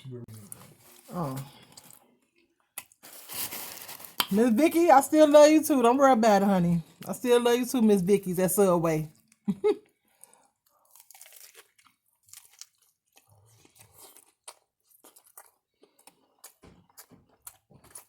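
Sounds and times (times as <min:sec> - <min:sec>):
chewing crunchy chips: 0:00.3 - 0:04.3, 0:09.1 - 0:18.0.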